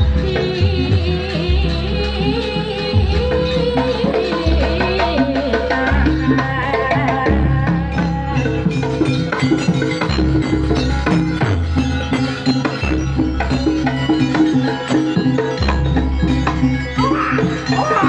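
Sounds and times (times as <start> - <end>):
drums and struck percussion: 0.0 - 18.0
traditional ensemble music: 0.0 - 18.0.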